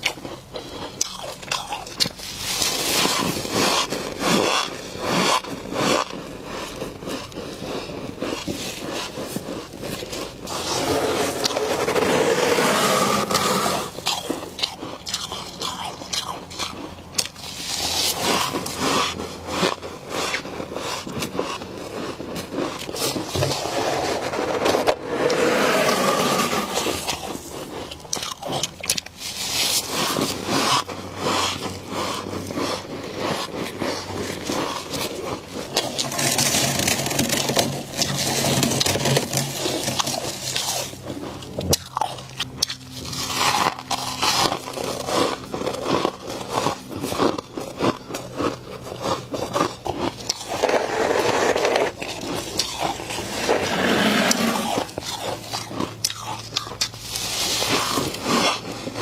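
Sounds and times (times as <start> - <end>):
frost crunching and crackling: 0.0 - 59.0
scraping and chewing: 0.0 - 59.0.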